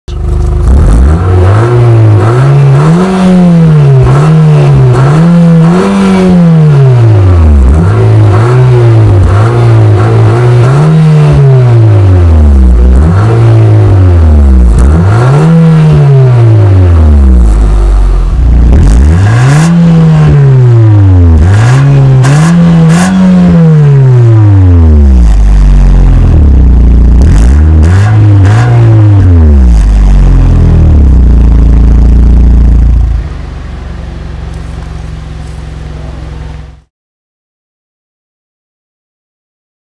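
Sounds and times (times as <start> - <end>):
car engine idling: 0.1 - 1.4, 16.5 - 19.2, 29.3 - 36.9
car engine revving: 0.1 - 36.9.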